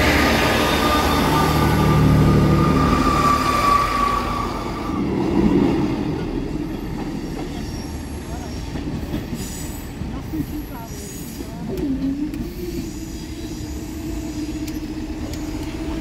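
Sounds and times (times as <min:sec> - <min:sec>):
high wheel squeal: 0:00.0 - 0:05.1
train engine rumble: 0:00.0 - 0:16.0
train wheel noise: 0:00.0 - 0:16.0.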